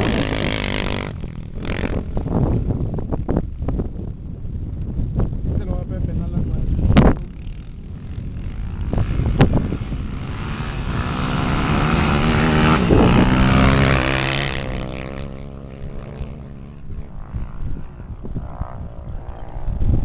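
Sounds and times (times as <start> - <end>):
racing engine passing by: 7.4 - 17.6.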